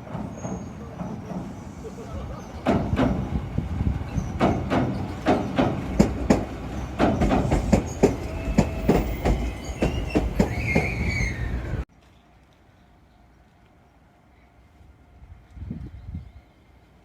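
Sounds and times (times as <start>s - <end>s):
train wheels clicking over rail joints: 0.0s - 1.8s, 2.5s - 11.8s
thin wheel squeal: 7.6s - 11.8s.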